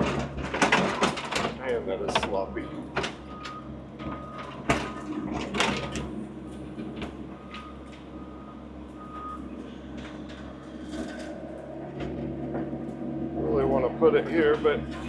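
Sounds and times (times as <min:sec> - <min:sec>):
machine clunks: 0:00.0 - 0:03.6
diesel engine running: 0:00.0 - 0:15.0.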